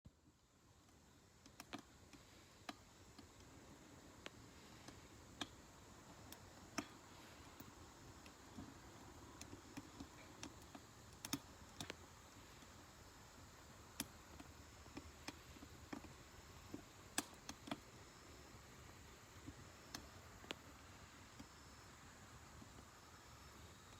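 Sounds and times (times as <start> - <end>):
wood fire crackling and popping: 0.3 - 18.1
fire hissing: 1.0 - 23.9.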